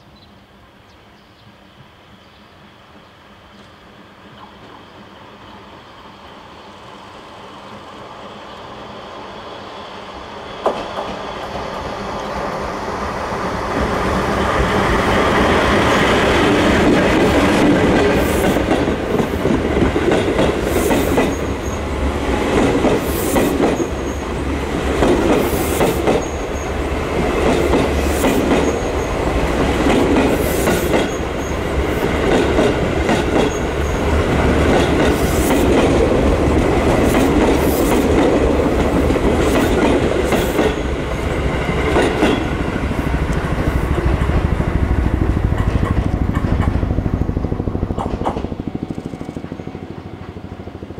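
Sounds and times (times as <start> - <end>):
train rumble: 1.4 - 50.9
wheels clacking over rail joints: 15.4 - 47.2, 47.8 - 50.4.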